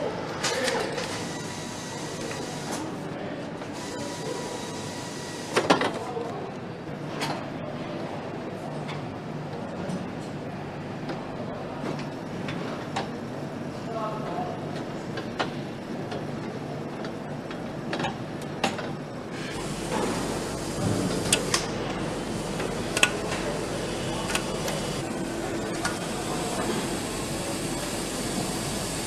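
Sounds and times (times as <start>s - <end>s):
steady machine hum: 0.0s - 5.7s, 6.4s - 29.0s.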